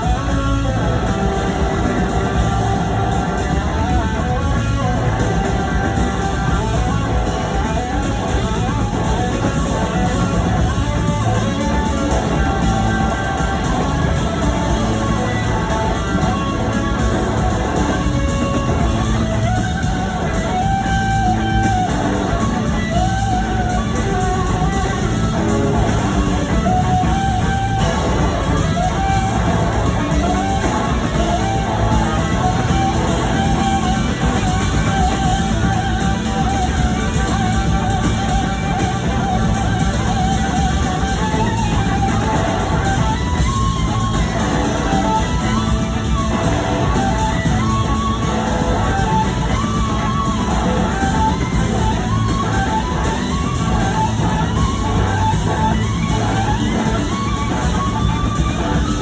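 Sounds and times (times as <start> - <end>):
drums: 0.0 - 59.0
electric guitar: 0.0 - 59.0
live rock band playing: 0.0 - 59.0
wavering held lead notes: 0.0 - 59.0.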